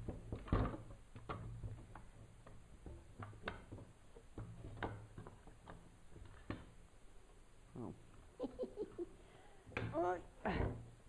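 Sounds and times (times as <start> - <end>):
tools tapping and knocking: 0.0 - 6.8.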